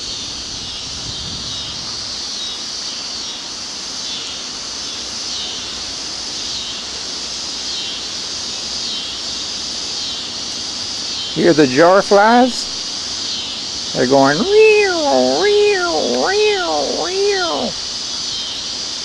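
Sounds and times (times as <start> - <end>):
cicadas buzzing: 0.0 - 19.0
low background noise: 10.6 - 18.8.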